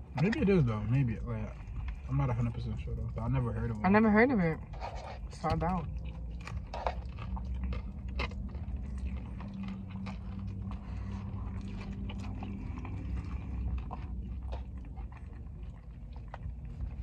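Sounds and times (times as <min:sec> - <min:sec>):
person chewing: 0:00.0 - 0:03.8, 0:04.6 - 0:17.0.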